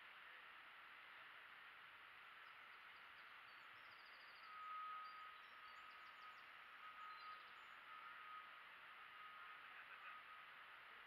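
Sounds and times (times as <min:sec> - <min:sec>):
faint high bird chirps: 0:02.4 - 0:10.6.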